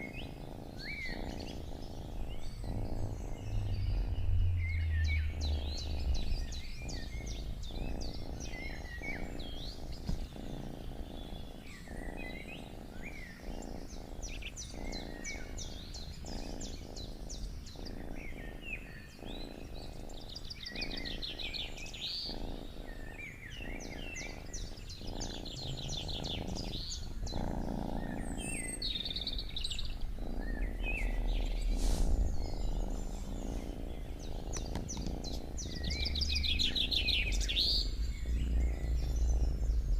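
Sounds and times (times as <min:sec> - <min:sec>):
cat purring: 0:00.0 - 0:39.9
songbirds chirping and trilling: 0:00.0 - 0:39.9.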